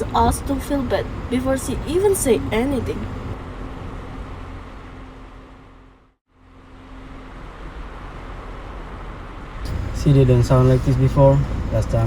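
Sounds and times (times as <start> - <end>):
car rumble from inside cabin: 0.0 - 3.4, 9.3 - 12.0.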